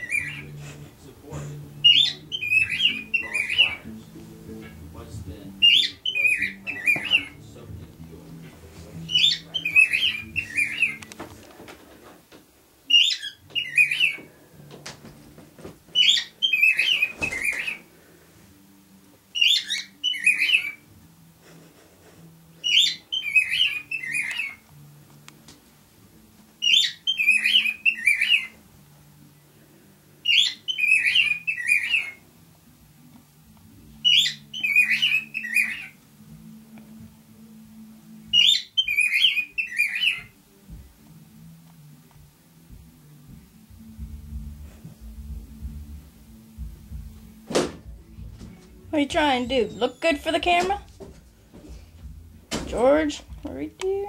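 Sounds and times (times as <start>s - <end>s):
cockatiel chirps and whistles: 0.0s - 0.5s, 1.8s - 3.8s, 5.6s - 7.4s, 9.1s - 11.0s, 12.9s - 14.2s, 16.0s - 17.8s, 19.4s - 20.8s, 22.6s - 24.6s, 26.6s - 28.6s, 30.2s - 32.2s, 34.0s - 35.9s, 38.3s - 40.3s.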